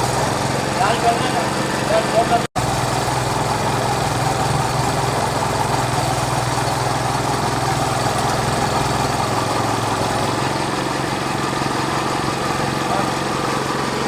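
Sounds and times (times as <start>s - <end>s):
small engine running steadily: 0.0s - 14.0s.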